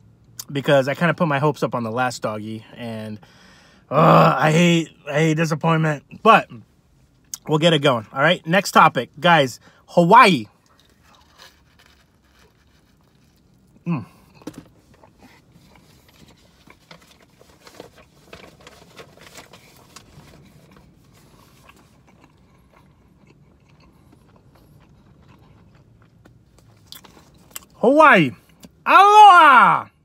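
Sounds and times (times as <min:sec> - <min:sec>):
crunchy chewing: 0:10.6 - 0:18.9, 0:20.4 - 0:27.7.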